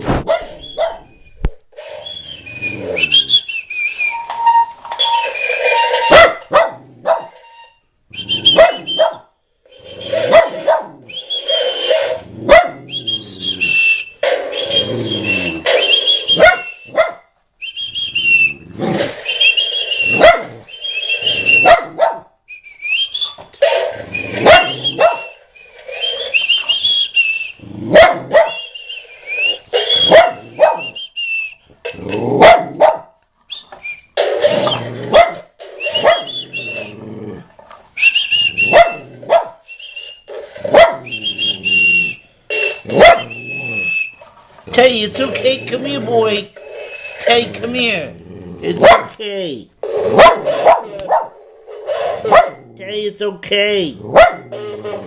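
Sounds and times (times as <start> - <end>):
dog barking: 0.2 - 1.1, 6.1 - 7.4, 8.5 - 9.3, 10.2 - 11.0, 12.4 - 12.8, 16.4 - 17.3, 20.1 - 20.6, 21.6 - 22.3, 24.4 - 25.4, 27.9 - 28.6, 30.0 - 31.0, 32.4 - 33.2, 35.1 - 36.4, 38.7 - 39.6, 40.7 - 41.1, 42.9 - 43.4, 48.8 - 49.2, 50.0 - 52.7, 54.1 - 54.6
parrot whistling calls: 0.5 - 6.2, 7.4 - 9.2, 9.8 - 12.3, 12.9 - 17.0, 17.6 - 21.8, 22.5 - 27.7, 28.3 - 31.7, 35.6 - 37.0, 38.0 - 44.2.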